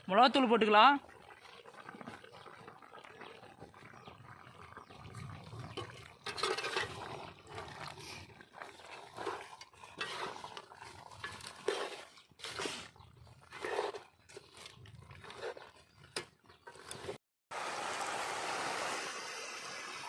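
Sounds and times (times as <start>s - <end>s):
metal ladle scraping a pan: 5.6s - 17.2s.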